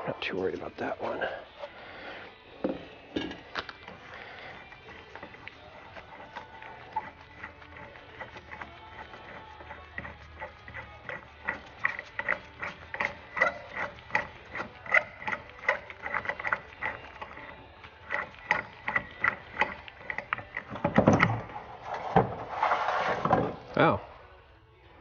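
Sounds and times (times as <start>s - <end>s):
metal clunks: 2.6s - 3.6s
ratchet wrench clicking: 7.0s - 20.8s.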